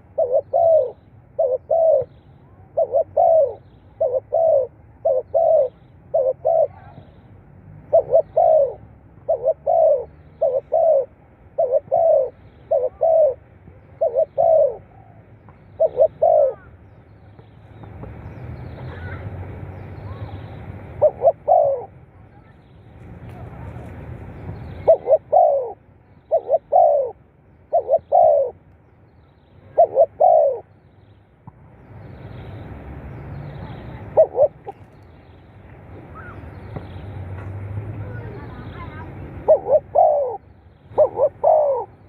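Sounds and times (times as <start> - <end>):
dove cooing: 0.0 - 7.2, 7.8 - 16.8, 20.9 - 22.5, 23.3 - 28.6, 29.6 - 30.7, 33.6 - 35.0, 38.0 - 42.0.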